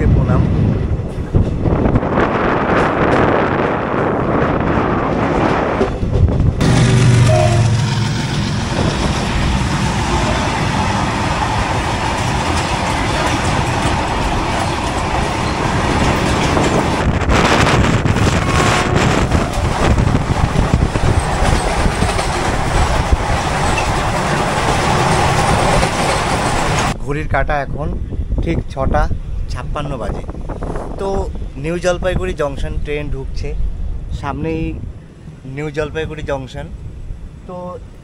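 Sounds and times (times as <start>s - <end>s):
train rattle: 0.0s - 27.0s
train wheels rumbling on rails: 0.0s - 27.0s.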